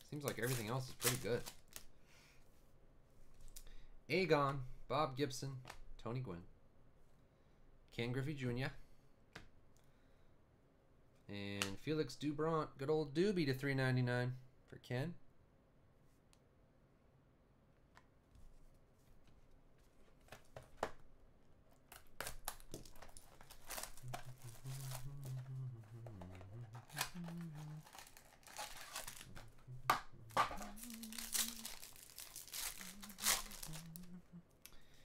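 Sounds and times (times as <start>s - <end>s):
cards rustling and crackling: 0.1s - 1.9s, 21.8s - 34.2s
wrapper tearing and crinkling: 0.2s - 1.9s, 21.9s - 25.5s, 26.7s - 29.6s, 30.2s - 34.2s.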